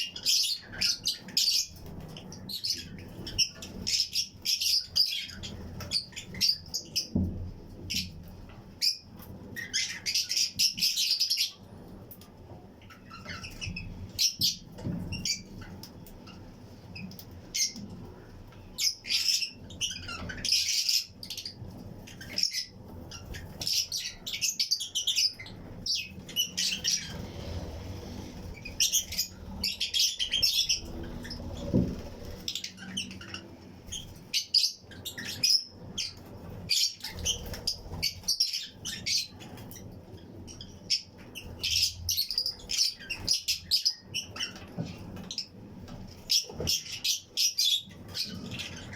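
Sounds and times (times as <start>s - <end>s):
lovebirds chirping: 0.0s - 11.9s, 12.8s - 48.9s
wing flapping: 26.8s - 32.7s.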